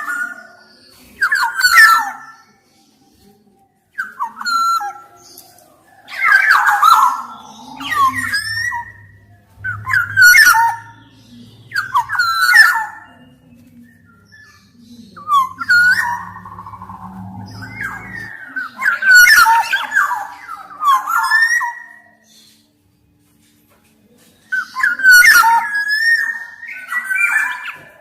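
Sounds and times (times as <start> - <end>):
bird singing whistled phrases: 4.0 - 22.5, 24.5 - 28.0
faint low hum: 7.0 - 19.0.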